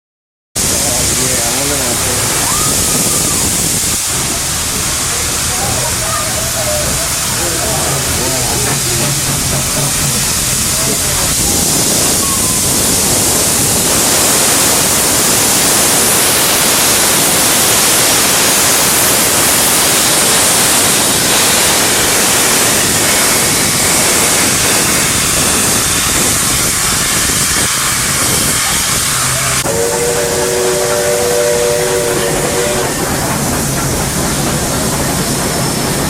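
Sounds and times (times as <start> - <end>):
steam locomotive hissing: 0.6 - 36.0
chime steam whistle: 12.0 - 12.9, 27.2 - 33.1.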